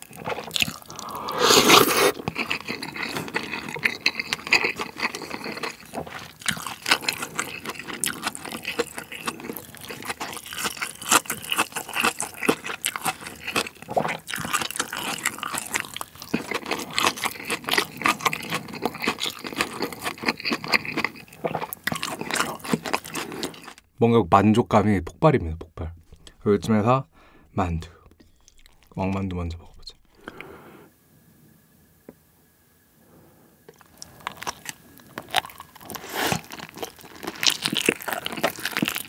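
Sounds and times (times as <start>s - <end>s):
chewing food with crunches: 0.0s - 23.9s, 28.2s - 29.2s, 33.7s - 39.0s.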